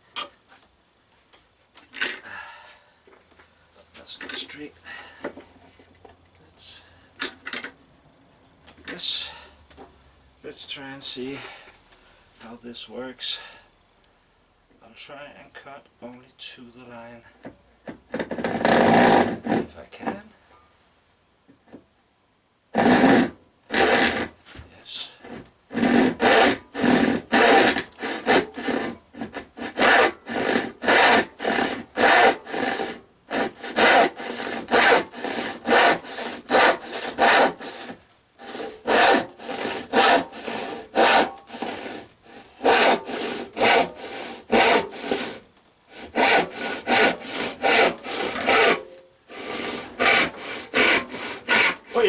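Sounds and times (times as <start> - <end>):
hand saw cutting wood: 17.9 - 20.2, 22.8 - 52.0.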